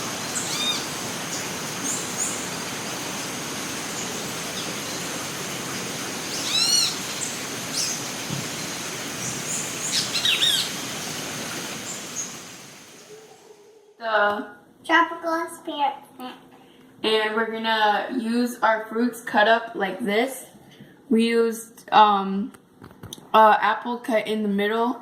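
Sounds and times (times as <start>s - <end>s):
steady hiss of water: 0.0s - 13.5s
bird calls: 0.2s - 2.6s, 6.1s - 13.9s.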